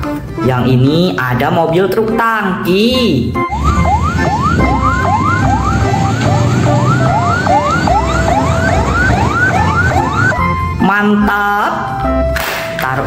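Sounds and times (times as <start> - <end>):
electronic siren whooping: 3.4 - 10.8.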